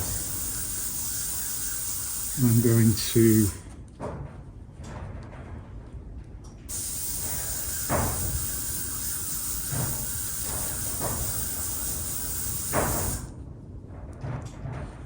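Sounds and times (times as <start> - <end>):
steady hiss: 0.0 - 3.6, 6.7 - 13.3.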